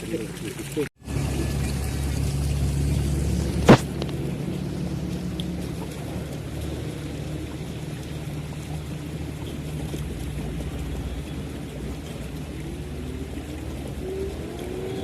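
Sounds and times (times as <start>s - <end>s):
outdoor noise: 0.0s - 15.0s
motor humming: 1.0s - 15.0s.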